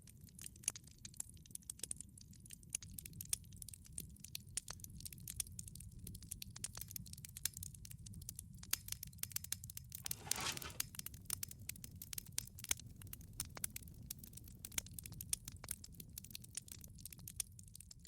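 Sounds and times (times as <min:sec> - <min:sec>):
wood fire crackling: 0:10.0 - 0:10.8.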